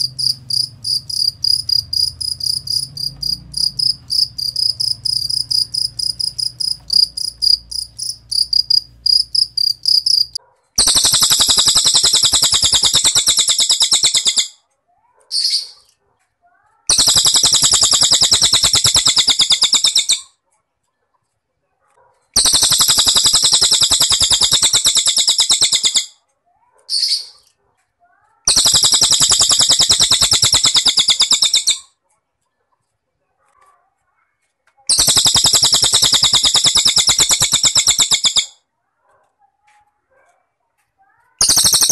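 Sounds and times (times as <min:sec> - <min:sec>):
cricket chirping: 0:00.0 - 0:14.5, 0:16.9 - 0:20.2, 0:22.4 - 0:26.1, 0:28.5 - 0:31.8, 0:34.9 - 0:38.5, 0:41.4 - 0:41.9
bird high trills: 0:00.0 - 0:14.6, 0:16.9 - 0:20.3, 0:22.4 - 0:26.1, 0:28.5 - 0:31.9, 0:34.9 - 0:38.6, 0:41.4 - 0:41.9.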